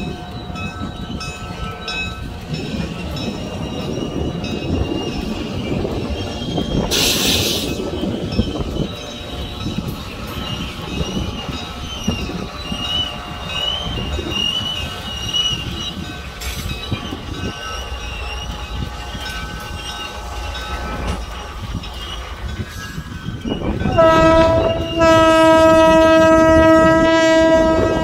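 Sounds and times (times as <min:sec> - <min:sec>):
diesel locomotives rumbling: 0:00.0 - 0:28.0
high wheel squeal: 0:03.6 - 0:25.7.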